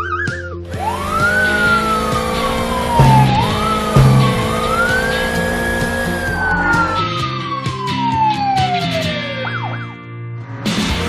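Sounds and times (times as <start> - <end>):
background music: 0.0 - 9.6
siren wailing: 0.8 - 9.3
short low note: 3.0 - 7.0.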